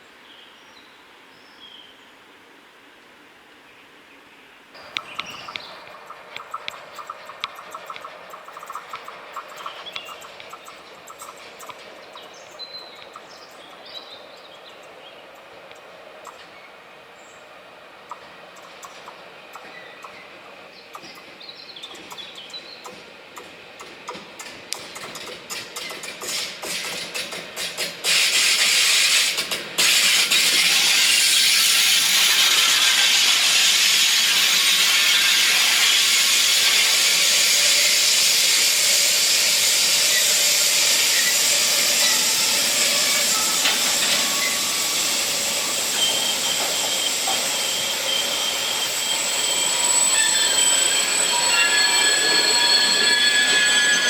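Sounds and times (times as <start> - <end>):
train wheels clicking over rail joints: 4.8 - 13.8, 18.1 - 54.0
passing train rushing hiss: 4.8 - 54.0
wheels squealing on rail: 24.0 - 54.0.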